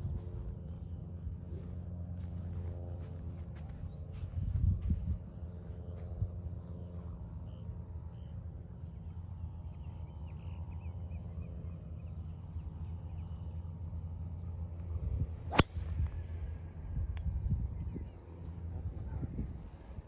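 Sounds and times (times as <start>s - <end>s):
steady low hum: 0.0s - 20.0s
golf driver striking ball: 15.5s - 15.9s.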